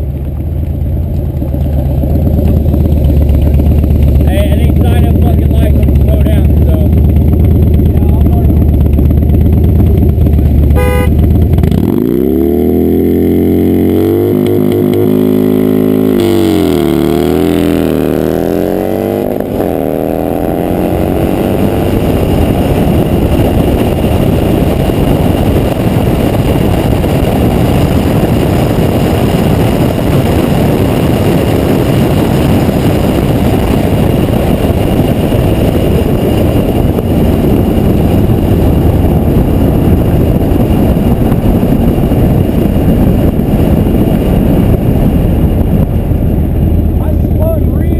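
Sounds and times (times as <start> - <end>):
vehicle engine revving: 0.0 - 47.9
beeping tone: 10.8 - 11.2.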